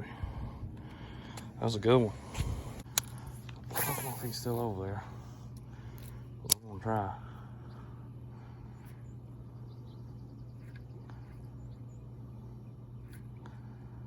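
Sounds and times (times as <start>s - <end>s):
steady low hum: 0.0s - 14.0s
faint bird chirps: 7.5s - 13.4s.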